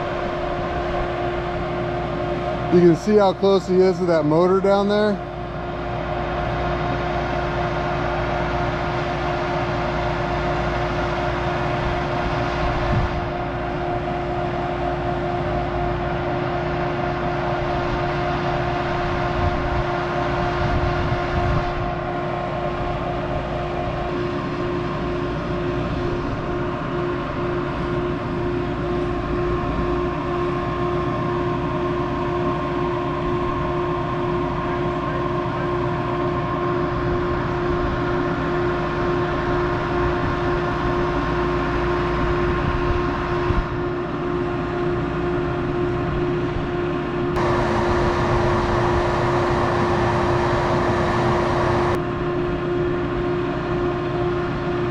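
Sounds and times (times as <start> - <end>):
steady whine: 0.0 - 54.9
tractor engine running: 47.3 - 52.0.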